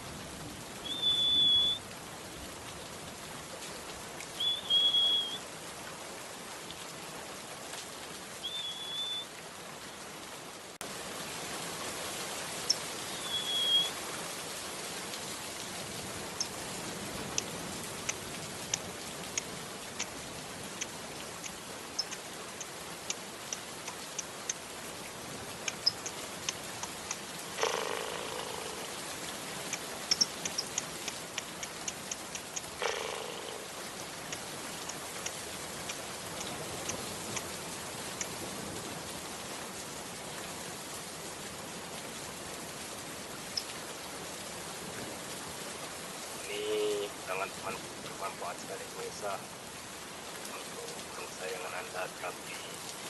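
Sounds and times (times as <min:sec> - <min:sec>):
rain water hissing: 0:00.0 - 0:53.0
bird chirping shrilly: 0:13.2 - 0:13.9.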